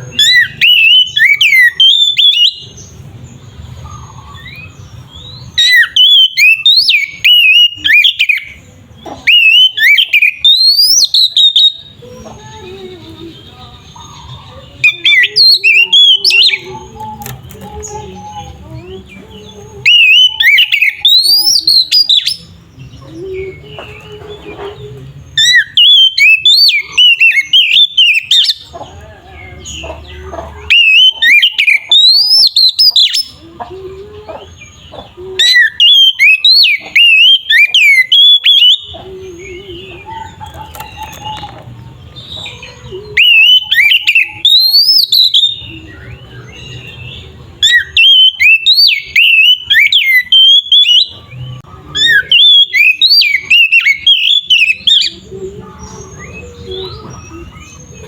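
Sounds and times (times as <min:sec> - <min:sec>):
bird singing whistled phrases: 0:00.0 - 0:02.9, 0:05.6 - 0:08.6, 0:09.2 - 0:12.0, 0:14.1 - 0:18.6, 0:19.4 - 0:23.6, 0:25.4 - 0:28.7, 0:30.7 - 0:33.4, 0:35.4 - 0:41.6, 0:42.4 - 0:58.0.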